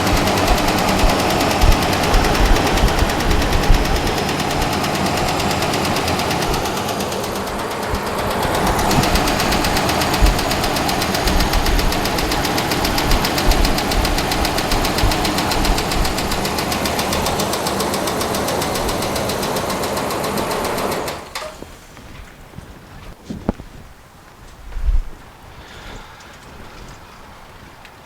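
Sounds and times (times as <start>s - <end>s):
engine running with ticking knock: 0.0s - 22.3s.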